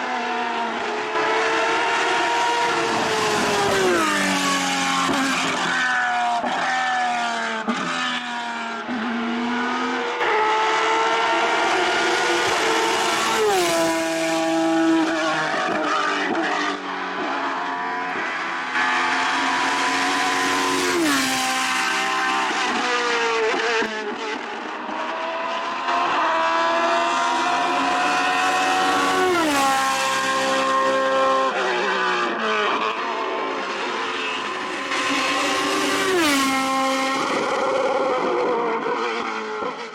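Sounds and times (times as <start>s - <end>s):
race car engine at full throttle: 0.0s - 39.9s.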